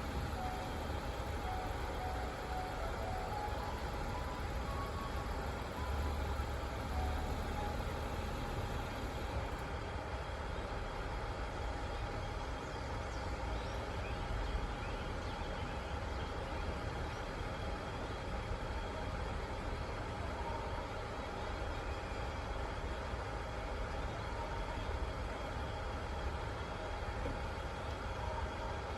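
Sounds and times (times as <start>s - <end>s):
trains rumbling and hissing: 0.0s - 28.9s.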